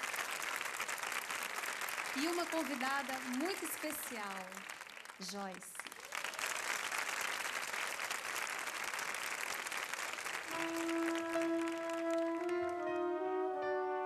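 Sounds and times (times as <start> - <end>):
audience applauding: 0.0 - 13.7
slow instrumental music: 10.5 - 14.0.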